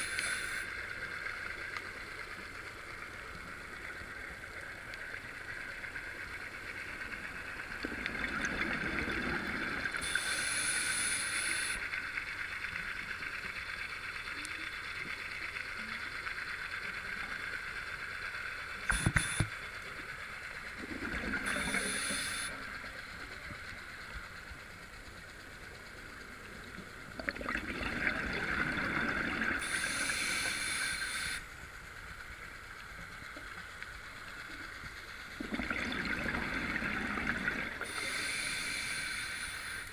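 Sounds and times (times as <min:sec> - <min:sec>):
scuba regulator breathing bubbles: 0:20.9 - 0:22.6, 0:35.4 - 0:39.9.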